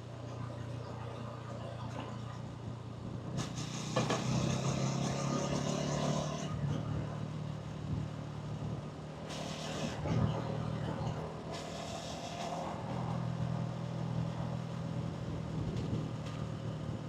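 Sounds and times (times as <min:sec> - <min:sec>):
motorcycle engine revving: 0:03.4 - 0:07.1.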